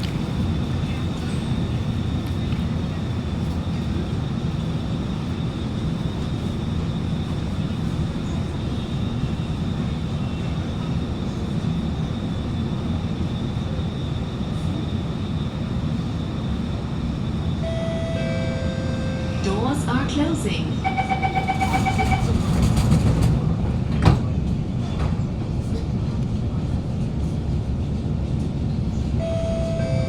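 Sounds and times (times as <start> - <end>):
train low hum: 0.0 - 30.0
door warning chime tones: 20.8 - 22.4.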